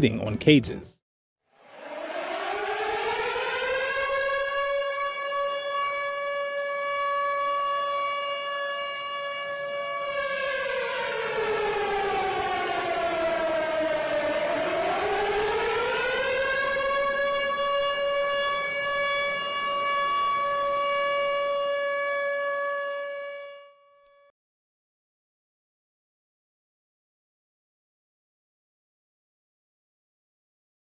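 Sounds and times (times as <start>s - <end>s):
air-raid siren wailing: 1.5s - 24.3s.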